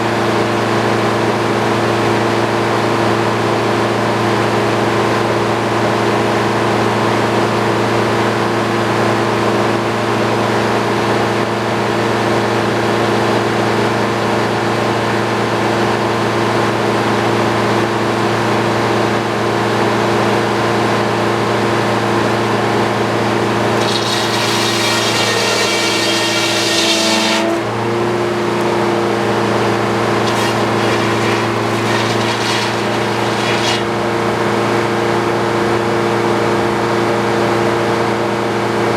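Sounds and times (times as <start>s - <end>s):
sawmill engine running under load: 23.6s - 34.4s
harsh high-pitched scraping: 23.8s - 27.7s, 30.2s - 34.1s.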